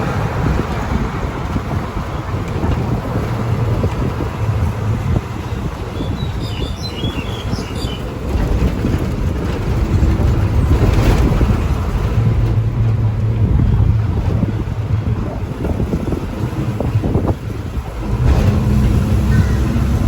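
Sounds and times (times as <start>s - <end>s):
vehicle rumble: 0.0s - 20.0s
wind noise: 0.0s - 20.0s
high chirps: 6.0s - 8.0s.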